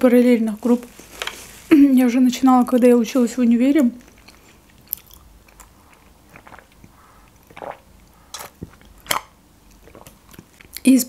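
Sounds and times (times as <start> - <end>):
person chewing food: 4.0 - 10.8.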